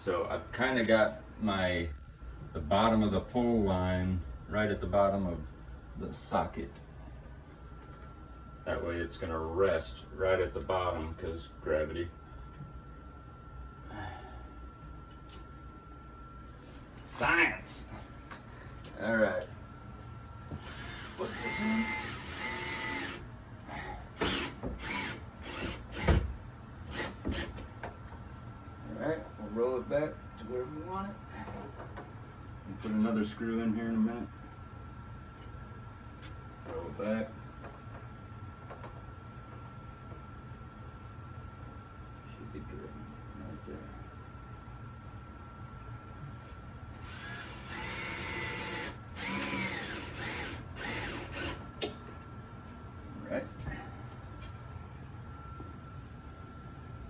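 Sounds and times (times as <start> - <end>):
power drill driving a screw: 20.5 - 23.2, 24.2 - 26.3, 26.9 - 27.6, 47.0 - 51.6.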